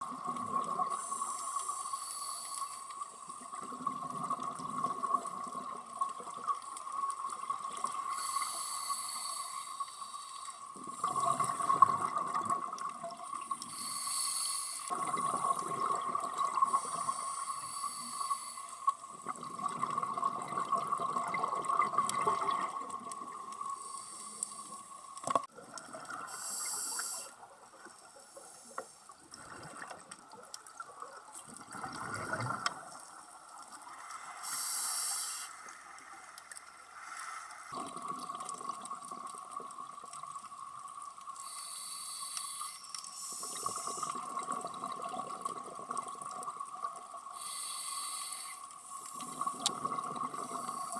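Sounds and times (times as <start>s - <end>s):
exhaled bubbles bursting: 3.4s - 8.1s, 10.8s - 13.6s, 14.9s - 17.1s, 19.1s - 23.6s, 31.5s - 32.9s, 37.7s - 40.6s, 43.5s - 47.0s, 49.2s - 50.8s
diver breathing through regulator: 8.1s - 11.5s, 13.6s - 15.0s, 16.7s - 18.9s, 26.3s - 27.3s, 34.3s - 35.6s, 41.4s - 44.2s, 47.4s - 49.6s.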